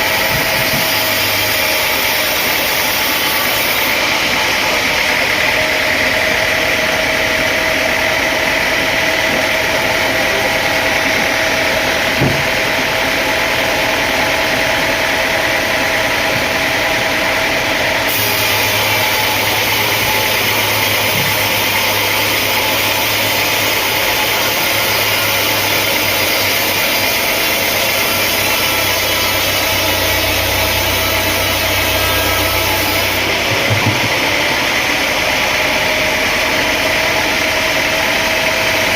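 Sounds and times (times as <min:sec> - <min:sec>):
sawmill machinery running: 0:00.0 - 0:38.9
single knock: 0:12.2 - 0:12.5.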